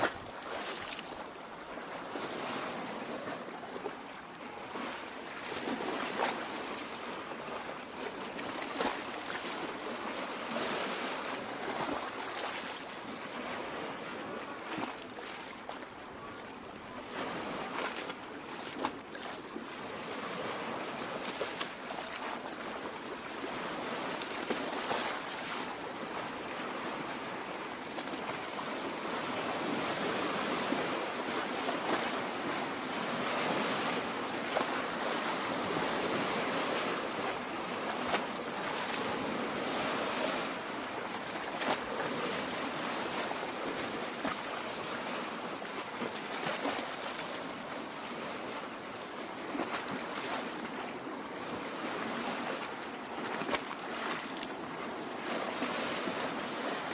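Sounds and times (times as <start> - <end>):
small water splashes: 0.0 - 1.4
water lapping on shore: 0.0 - 56.9.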